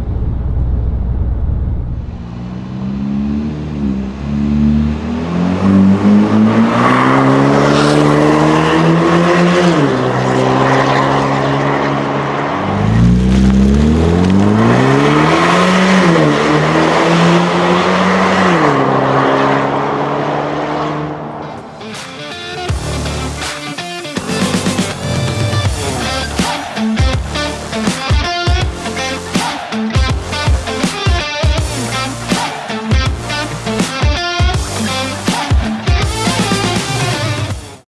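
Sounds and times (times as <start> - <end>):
car exhaust under acceleration: 0.0 - 22.0, 22.6 - 23.5, 24.2 - 27.9, 30.0 - 30.8.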